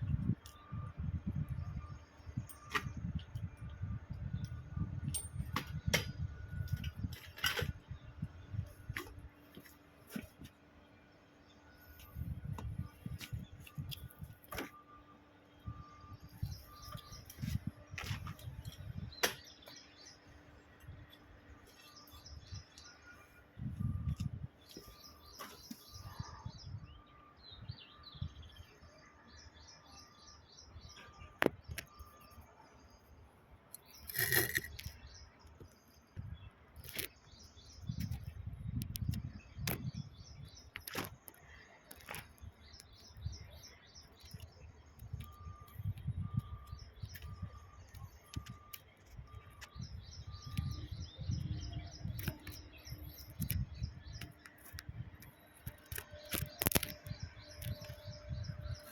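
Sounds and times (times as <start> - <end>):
metal pump parts rumbling: 33.8 - 35.0.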